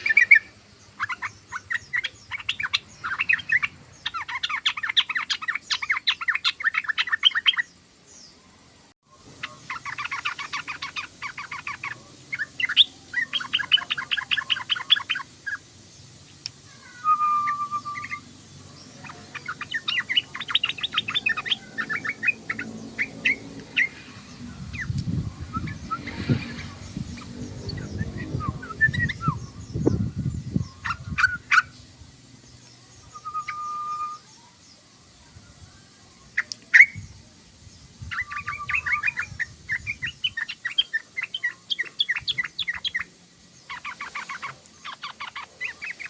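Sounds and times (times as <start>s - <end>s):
bird chattering: 0.0s - 7.7s, 9.3s - 15.6s, 16.4s - 31.8s, 38.0s - 46.0s
held whistled bird note: 17.0s - 18.3s, 33.1s - 34.3s.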